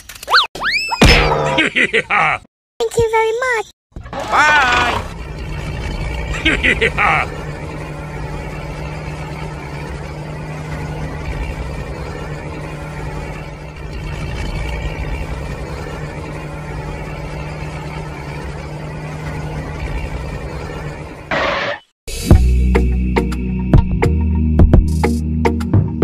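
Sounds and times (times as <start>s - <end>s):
tractor engine running: 4.0s - 21.8s.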